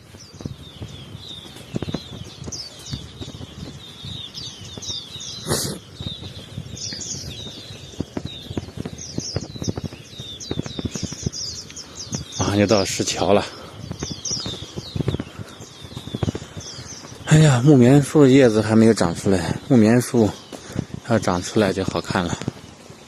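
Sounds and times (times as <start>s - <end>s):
irregular low thumps: 0.0s - 17.8s
small birds chirping: 0.0s - 23.0s.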